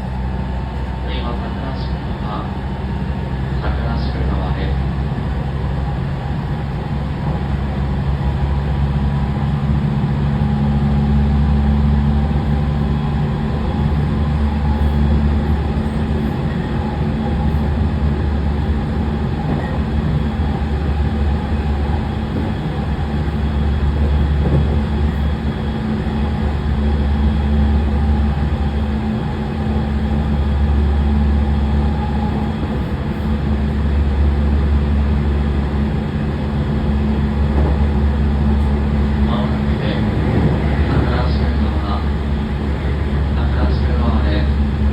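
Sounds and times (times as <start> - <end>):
train wheels rumbling on rails: 0.0 - 44.9.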